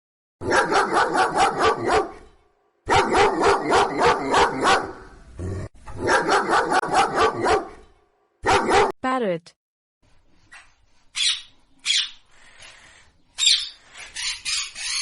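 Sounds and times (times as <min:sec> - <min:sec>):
dog barking rapidly: 0:00.4 - 0:02.2, 0:02.9 - 0:05.1, 0:06.0 - 0:07.8, 0:08.4 - 0:09.0.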